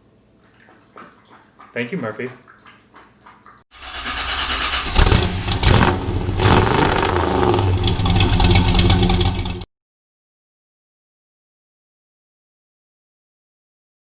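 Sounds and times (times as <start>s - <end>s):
engine starting and revving: 3.7s - 9.7s.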